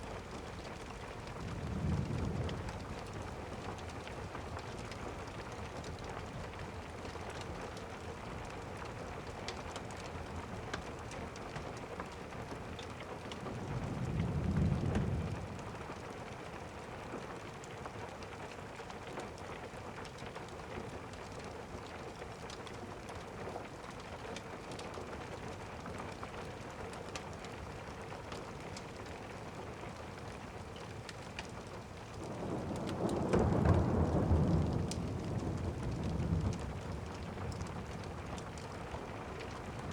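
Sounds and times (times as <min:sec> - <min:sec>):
steady rain: 0:00.0 - 0:39.9
thunder rumbling: 0:01.0 - 0:04.4, 0:13.4 - 0:15.9, 0:32.2 - 0:39.9.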